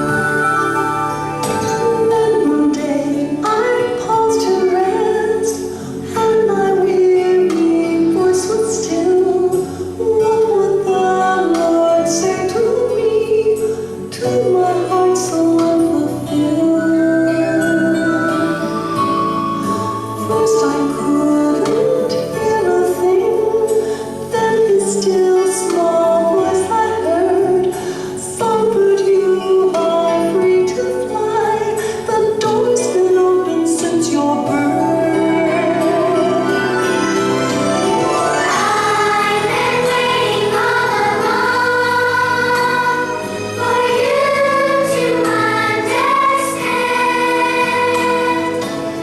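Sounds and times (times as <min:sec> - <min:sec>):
instrumental accompaniment: 0:00.0 - 0:13.0, 0:13.6 - 0:30.4, 0:32.5 - 0:49.0
backing music: 0:00.0 - 0:49.0
children's choir singing: 0:06.2 - 0:23.7, 0:32.3 - 0:49.0
girl singing: 0:24.3 - 0:27.7.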